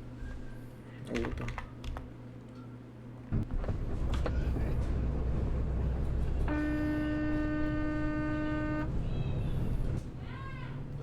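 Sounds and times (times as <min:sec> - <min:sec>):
road and engine rumble: 0:03.4 - 0:11.0
vehicle horn long note: 0:06.5 - 0:09.5.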